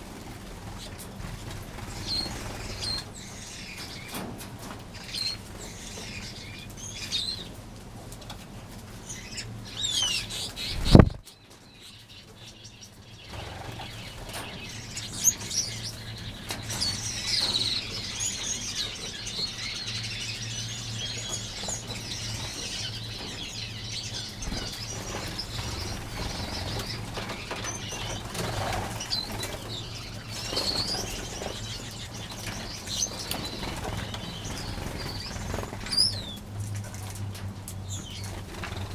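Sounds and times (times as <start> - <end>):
steady low hum: 8.9 - 11.3
finches chirping: 9.0 - 36.4
wings fluttering: 10.1 - 11.3, 21.2 - 38.9.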